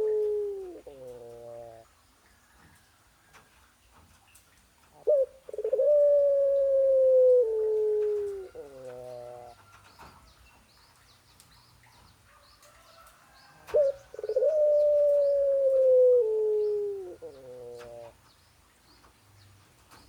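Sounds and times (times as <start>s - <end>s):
faint high chirps of small birds: 8.0s - 20.0s.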